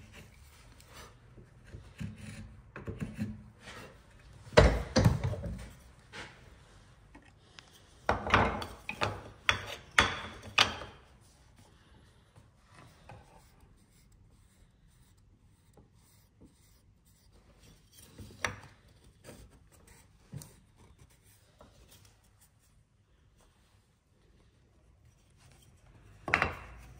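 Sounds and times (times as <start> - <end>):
chisel scraping wood: 0.0 - 4.0.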